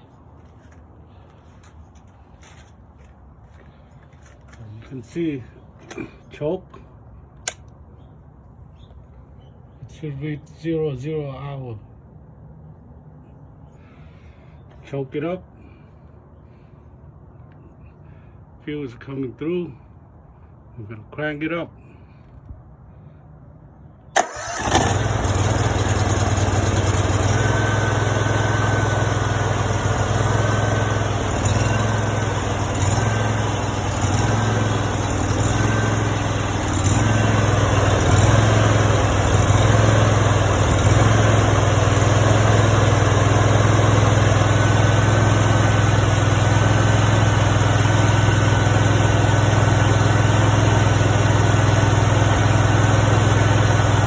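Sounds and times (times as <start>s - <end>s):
engine starting and running: 24.1s - 54.0s.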